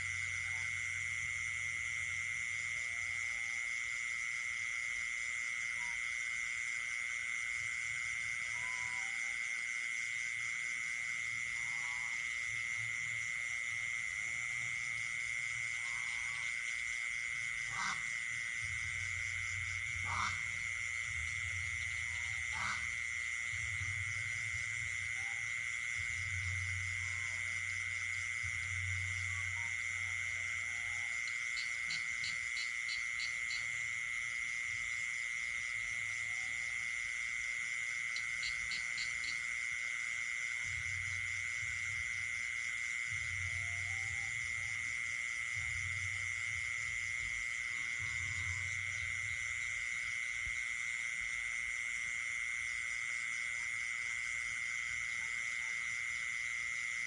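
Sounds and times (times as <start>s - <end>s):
frog calls: 0.0s - 1.1s, 5.6s - 6.2s, 8.1s - 9.7s, 10.9s - 13.0s, 14.3s - 34.0s, 34.8s - 51.1s
high insect trill: 0.0s - 57.0s
pulsing insect calls: 0.0s - 57.0s.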